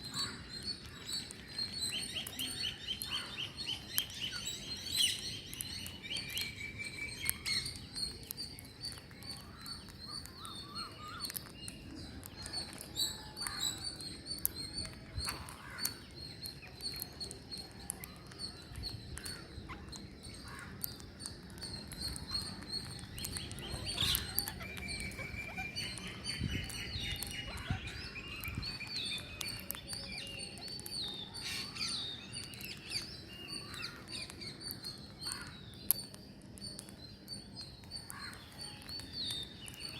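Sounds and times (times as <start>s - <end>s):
parrots chirping: 0.1s - 39.9s
parrot trilled calls: 22.2s - 32.0s.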